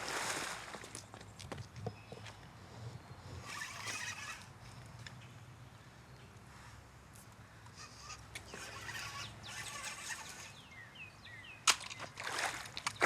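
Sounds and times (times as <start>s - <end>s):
bird chirps: 7.8s - 12.2s.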